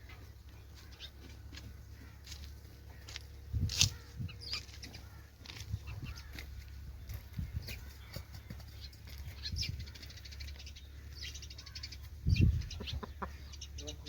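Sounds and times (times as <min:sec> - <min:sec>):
chicken calls: 0:07.7 - 0:14.0.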